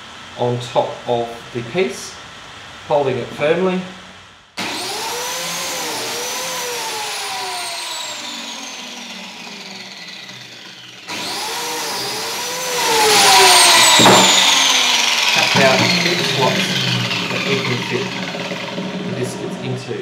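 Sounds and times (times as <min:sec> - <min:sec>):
blade cutting into wood: 0:04.6 - 0:19.7
biscuit joiner motor whining: 0:04.6 - 0:20.0.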